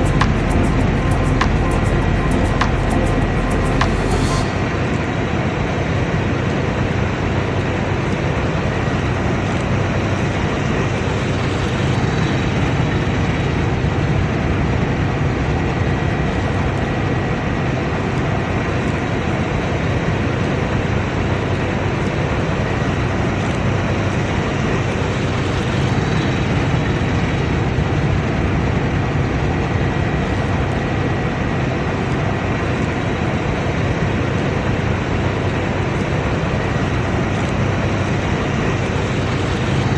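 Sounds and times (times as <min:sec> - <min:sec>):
combine harvester droning: 0:00.0 - 0:08.0.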